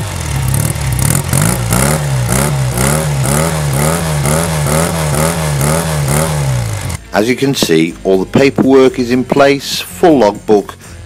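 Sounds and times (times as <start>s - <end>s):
motorcycle engine revving: 0.0s - 7.9s.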